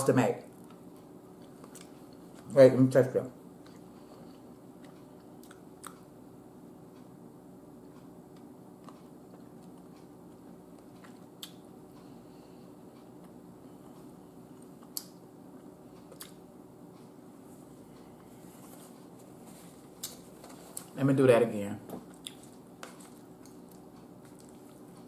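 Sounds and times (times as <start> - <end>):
steady low hum: 0.0 - 25.0
faint chewing: 0.5 - 2.5, 3.6 - 6.1, 7.8 - 16.4, 22.0 - 25.0.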